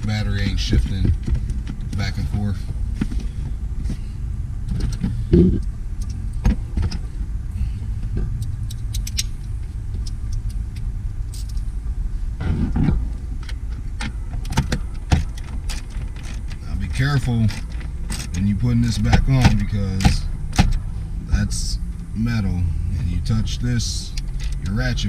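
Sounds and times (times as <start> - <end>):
steady low rumble: 0.0 - 25.0
metal bracket clicks and knocks: 8.6 - 9.4.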